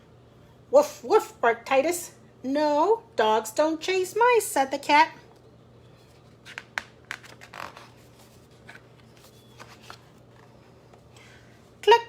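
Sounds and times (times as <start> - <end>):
page being turned: 6.0 - 10.6.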